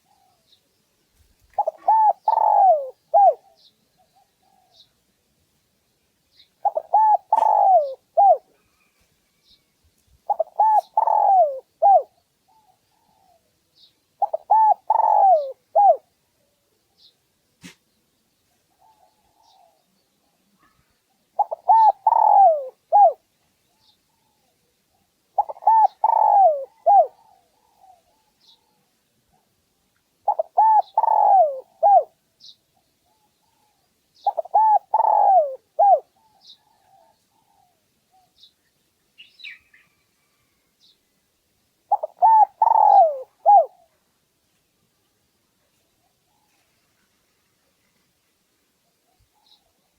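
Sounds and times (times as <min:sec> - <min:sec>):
dove cooing: 0:00.0 - 0:00.4, 0:01.5 - 0:04.9, 0:06.6 - 0:08.6, 0:10.2 - 0:13.5, 0:14.2 - 0:16.1, 0:18.7 - 0:19.9, 0:21.4 - 0:23.2, 0:23.8 - 0:29.5, 0:30.2 - 0:32.2, 0:33.0 - 0:38.4, 0:41.9 - 0:44.0.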